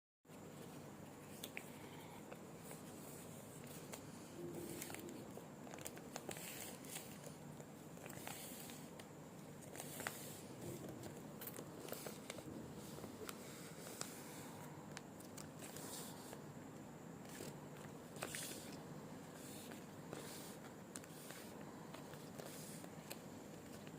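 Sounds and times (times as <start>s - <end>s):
packaging crinkles: 3.8s - 7.4s.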